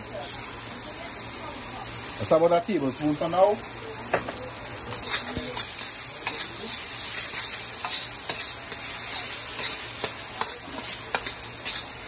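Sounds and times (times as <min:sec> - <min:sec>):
food sizzling in a wok: 0:00.0 - 0:12.0
utensil scraping a pan: 0:04.9 - 0:12.0.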